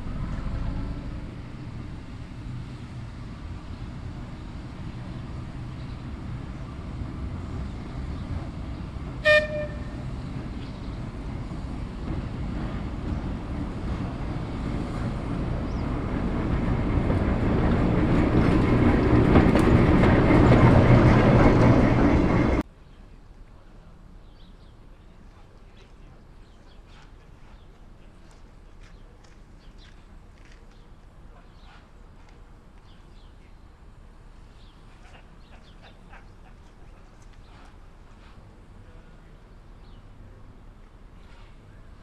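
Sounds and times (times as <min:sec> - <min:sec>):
steam train passing: 0:00.0 - 0:22.6, 0:24.8 - 0:42.0
train whistle blast: 0:09.2 - 0:10.0.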